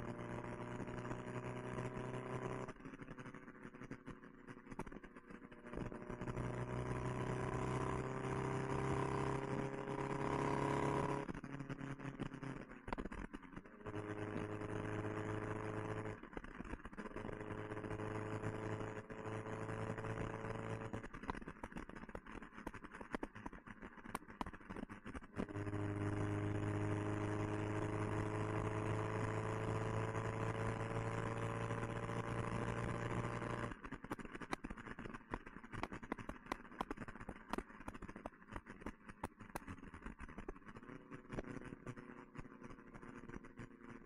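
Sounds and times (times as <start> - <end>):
car engine accelerating: 5.6 - 12.6, 13.8 - 16.2, 17.2 - 21.0, 25.4 - 33.8.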